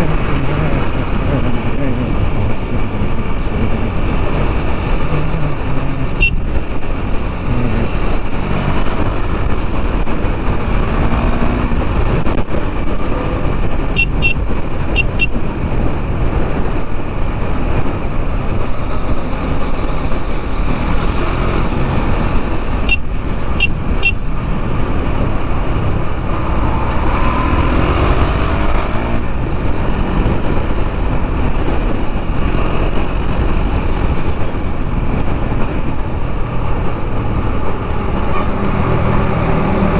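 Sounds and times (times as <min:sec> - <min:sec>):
motorcycle engine running: 0:00.0 - 0:39.9
wind buffeting: 0:00.0 - 0:39.9
car horn beeps: 0:06.1 - 0:06.5, 0:13.9 - 0:15.4, 0:22.8 - 0:24.3.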